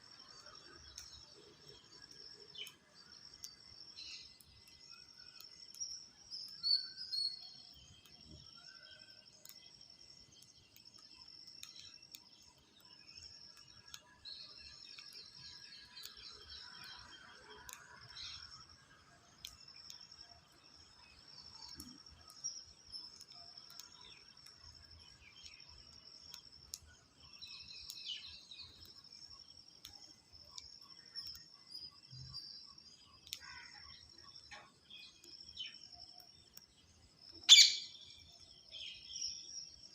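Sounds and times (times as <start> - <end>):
small clicks: 0.2 - 39.8
birds chirping: 19.6 - 39.9.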